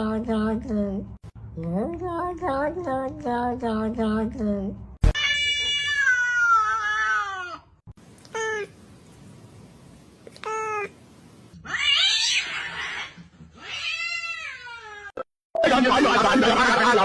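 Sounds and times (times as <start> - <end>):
cat meowing: 5.2 - 7.6.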